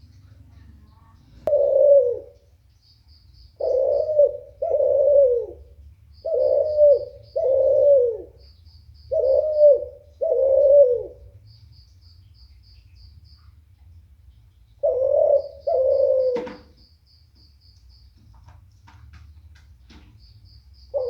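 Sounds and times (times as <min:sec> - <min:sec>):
dove cooing: 0:00.1 - 0:02.6, 0:03.6 - 0:08.5, 0:09.1 - 0:11.4, 0:14.8 - 0:16.8.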